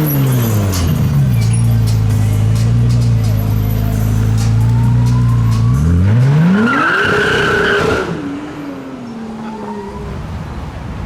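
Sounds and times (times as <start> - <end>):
high squeal: 0.0 - 2.5, 9.1 - 11.0
car engine accelerating: 0.0 - 11.0.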